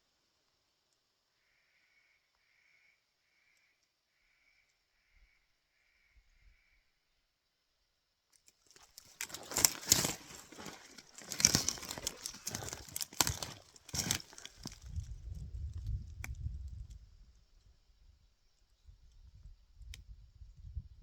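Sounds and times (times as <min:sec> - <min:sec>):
footsteps crunching through dry brush: 0:08.7 - 0:15.1.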